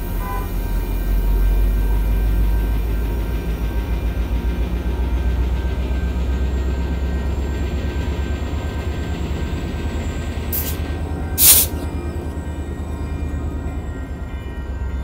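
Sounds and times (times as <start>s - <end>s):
diesel locomotive engine rumble: 0.0s - 15.0s
air hiss bursts: 10.6s - 10.8s, 11.4s - 11.8s.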